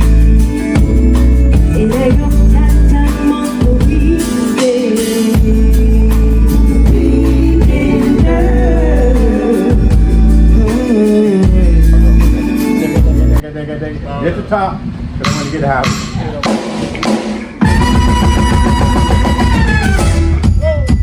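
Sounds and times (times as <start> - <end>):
live funk band playing: 0.0 - 13.4, 15.2 - 21.0
person singing lead vocal: 0.0 - 13.4.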